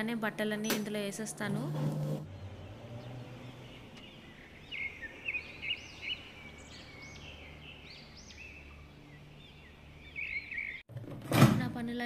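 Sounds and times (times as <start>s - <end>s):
small birds chirping: 2.2s - 10.9s.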